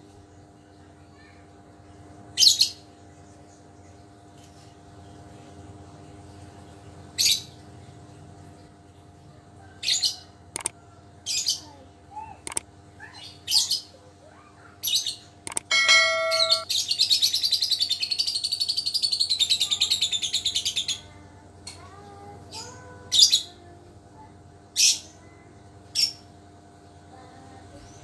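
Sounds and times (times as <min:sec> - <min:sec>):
lovebird chirping and trilling: 0:14.8 - 0:20.8.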